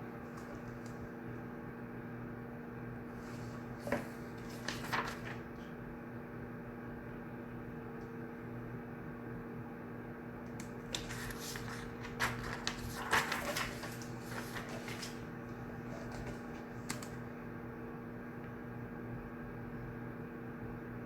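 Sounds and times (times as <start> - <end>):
room hum: 0.0 - 21.0
objects clicking and rustling on desk: 10.8 - 15.2.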